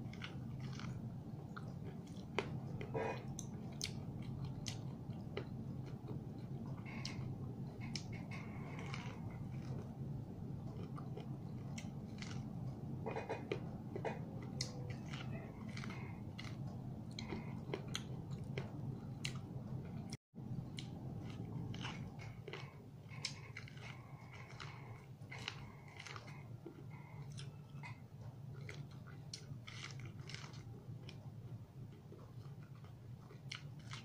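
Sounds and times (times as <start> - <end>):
steady low hum: 0.0 - 34.0
crunching corn on the cob: 14.6 - 16.6, 29.6 - 30.7.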